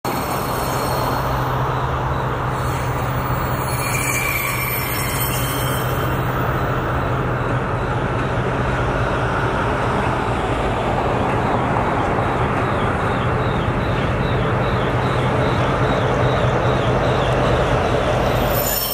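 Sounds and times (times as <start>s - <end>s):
freight train rumbling by: 0.0s - 18.9s
train wheel squeal: 0.1s - 8.4s, 12.7s - 18.9s.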